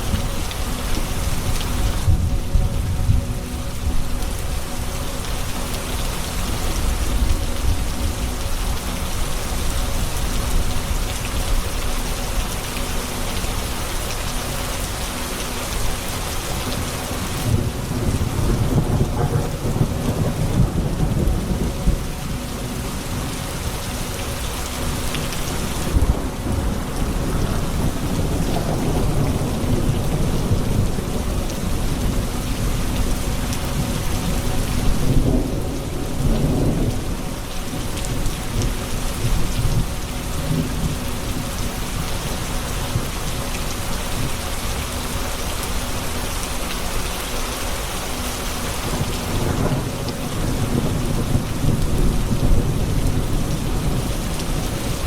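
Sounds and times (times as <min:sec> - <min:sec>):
low rolling thunder: 0:00.0 - 0:04.7, 0:16.6 - 0:23.4, 0:25.0 - 0:43.4, 0:48.8 - 0:55.0
steady rain: 0:00.0 - 0:55.0.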